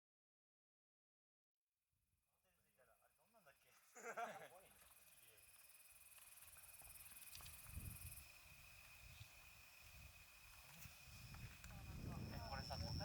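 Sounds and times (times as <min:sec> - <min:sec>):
insects chirring: 0:02.8 - 0:13.0.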